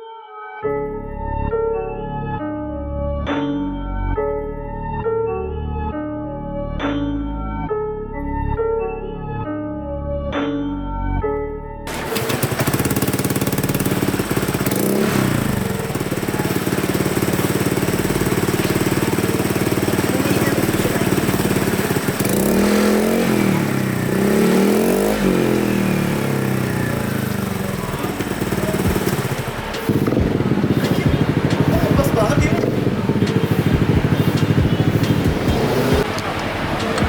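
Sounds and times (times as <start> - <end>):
motor scooter engine revving: 11.9 - 37.0.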